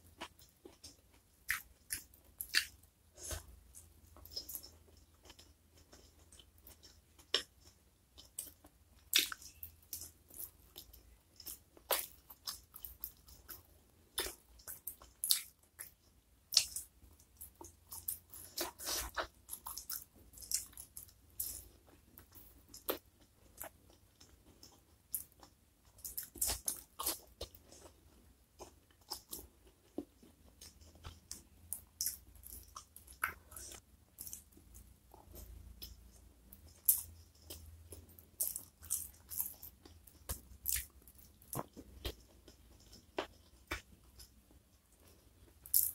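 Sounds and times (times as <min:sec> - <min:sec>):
food chewing with wet crunches: 0:00.0 - 0:45.9.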